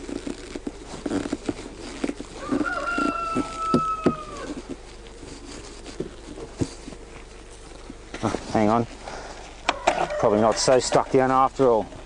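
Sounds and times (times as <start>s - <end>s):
rooster crowing: 2.4s - 4.7s, 9.6s - 10.8s.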